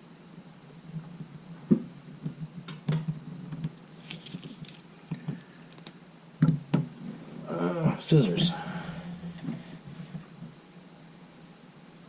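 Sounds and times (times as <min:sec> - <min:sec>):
tools rummaged on a workbench: 0:04.0 - 0:05.4.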